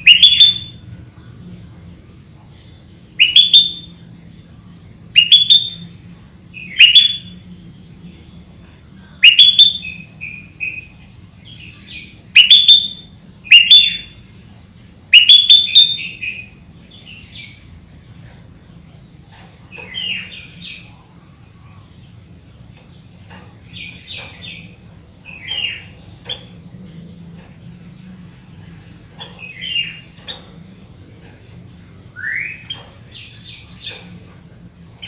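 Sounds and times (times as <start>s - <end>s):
soft bird twittering: 15.1s - 35.0s.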